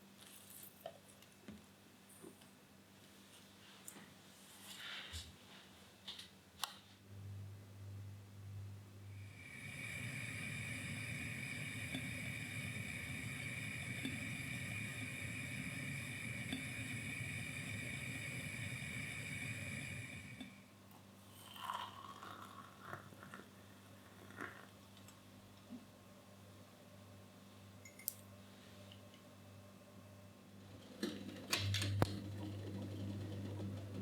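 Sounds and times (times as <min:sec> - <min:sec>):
electric appliance motor whining: 0:31.0 - 0:34.0.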